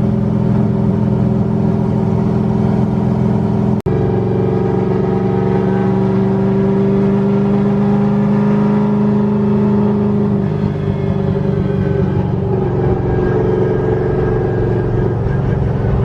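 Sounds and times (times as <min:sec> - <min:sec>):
car engine cruising drone: 0:00.0 - 0:16.0.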